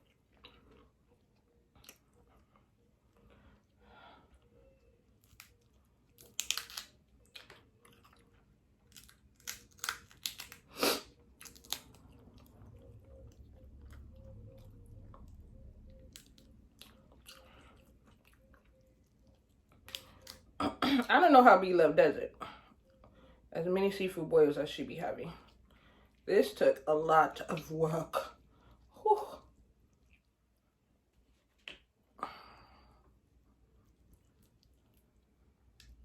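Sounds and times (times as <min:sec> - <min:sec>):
crab shell cracking: 0:05.2 - 0:07.6, 0:08.9 - 0:10.7, 0:11.4 - 0:12.0
chewing and biting seafood: 0:05.2 - 0:20.6.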